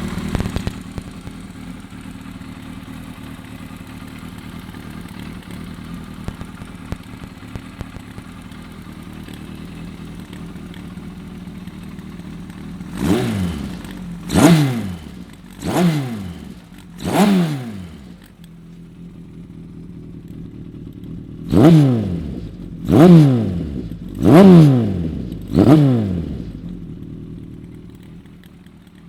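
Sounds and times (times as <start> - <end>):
engine revving: 0.0 - 1.6, 12.4 - 18.4, 20.2 - 28.1
motorcycle engine idling: 0.0 - 29.0.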